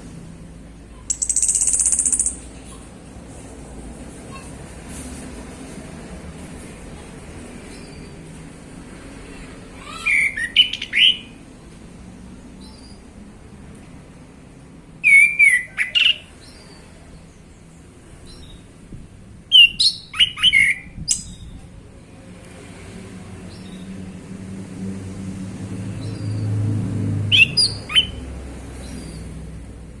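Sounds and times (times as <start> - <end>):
thrush singing whistled phrases: 10.1 - 11.3, 19.5 - 21.3, 27.3 - 28.2.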